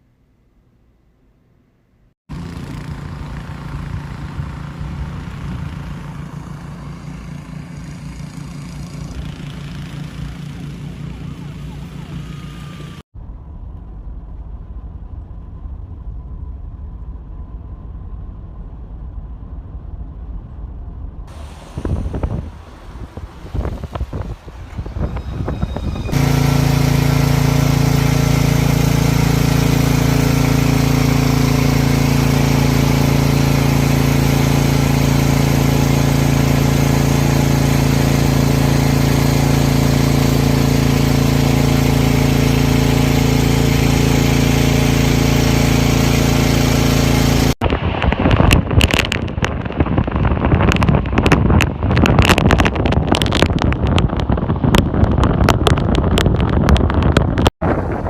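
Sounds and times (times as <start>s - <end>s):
wind buffeting microphone: 20.0s - 26.2s, 47.6s - 58.0s
motor humming: 23.6s - 47.6s.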